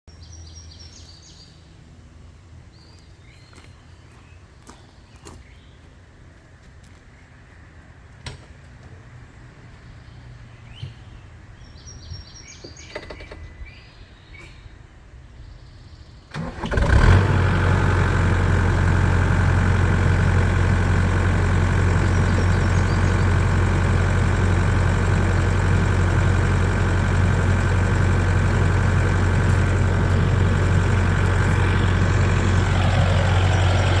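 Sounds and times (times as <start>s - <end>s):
diesel engine cranking and starting: 16.3s - 34.0s
diesel engine idling loudly: 16.3s - 34.0s
birds chirping faintly: 18.1s - 34.0s.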